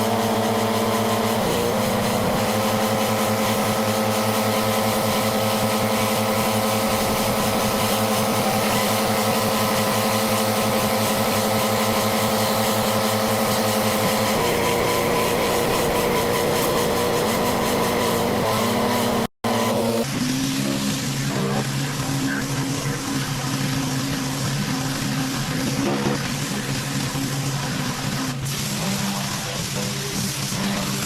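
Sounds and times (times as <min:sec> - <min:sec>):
water spray hissing: 0:00.0 - 0:19.3
pressure washer engine running: 0:00.0 - 0:31.0.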